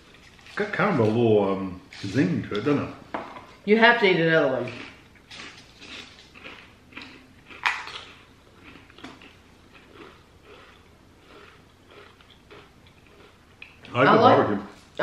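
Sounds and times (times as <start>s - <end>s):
person crunching a potato crisp: 4.7s - 14.0s.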